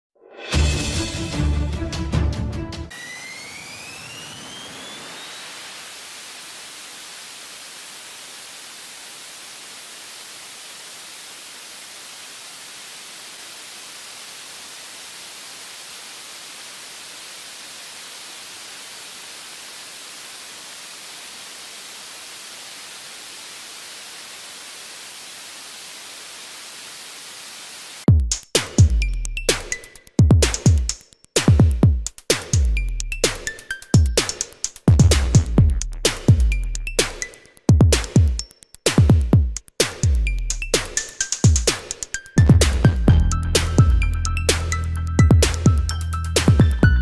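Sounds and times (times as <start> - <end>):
steady static hiss: 4.3 - 28.1.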